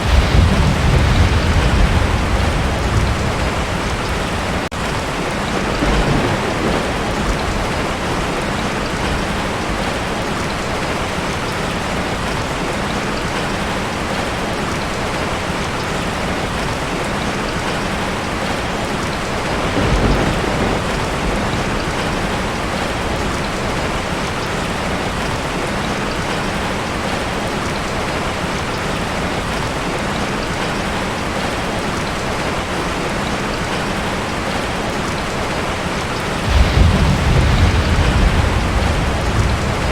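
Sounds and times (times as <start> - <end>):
thunder rumbling: 0.0 - 10.1, 19.3 - 24.2, 36.4 - 39.9
heavy rain on a tin roof: 0.0 - 39.9.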